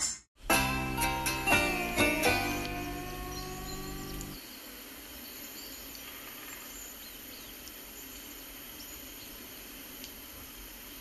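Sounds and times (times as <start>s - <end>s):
steady background hiss: 0.5s - 11.0s
faint high chirps: 1.5s - 4.6s.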